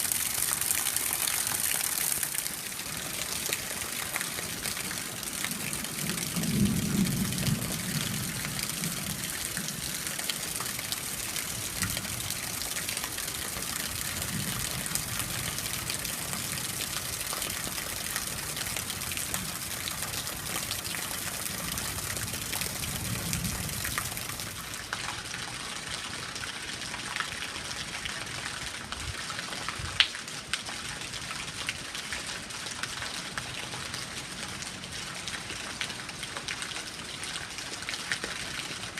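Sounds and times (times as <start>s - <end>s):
water gushing off roof into pool: 0.0s - 6.0s
heavy rain: 0.0s - 38.9s.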